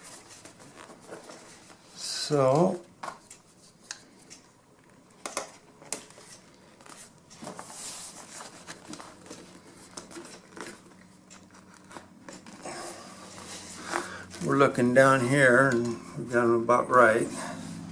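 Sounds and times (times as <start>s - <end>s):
material crinkling and rustling: 0.0s - 3.7s, 4.9s - 14.9s.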